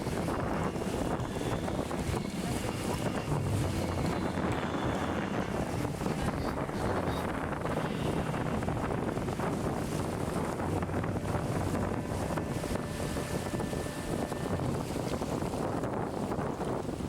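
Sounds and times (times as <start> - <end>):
river water rushing: 0.0 - 16.4
wind buffeting microphone: 0.0 - 17.0.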